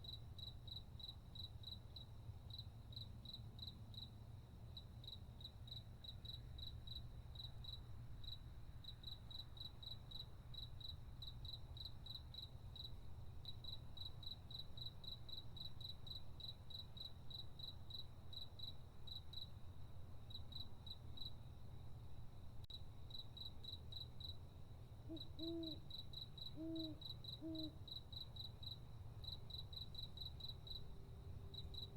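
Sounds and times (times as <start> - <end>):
cricket chirping: 0.0 - 21.8, 22.7 - 31.9.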